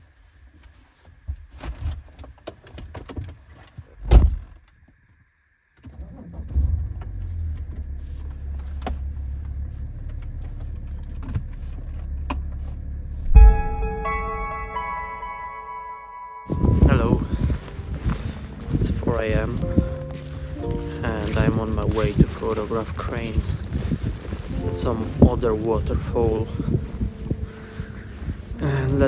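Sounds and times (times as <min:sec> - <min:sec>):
car driving rumble from inside: 0:06.0 - 0:13.4, 0:16.5 - 0:29.0.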